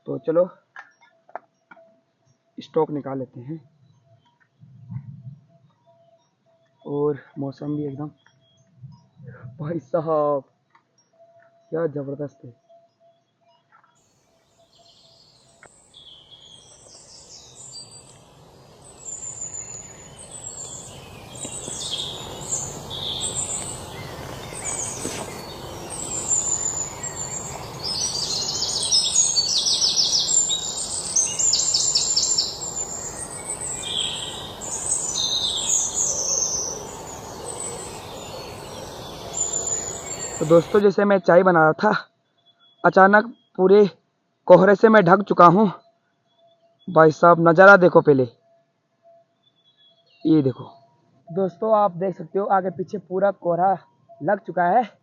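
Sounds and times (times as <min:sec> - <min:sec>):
birds chirping and trilling: 0:11.0 - 0:40.9, 0:49.4 - 0:53.2
steady outdoor hiss: 0:14.1 - 0:41.4.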